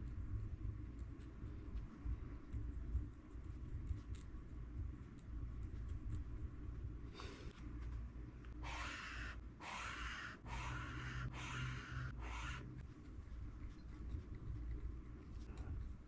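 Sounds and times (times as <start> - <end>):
highlighter scratching on paper: 8.6 - 13.1.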